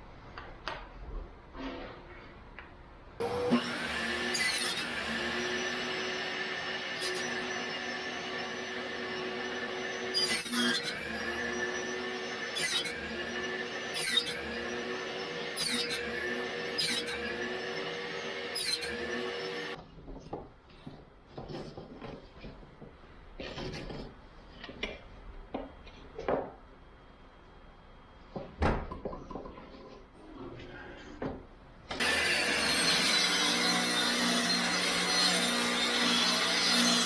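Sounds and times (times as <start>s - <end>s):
small power tool working wood: 3.2s - 19.8s, 32.0s - 37.0s.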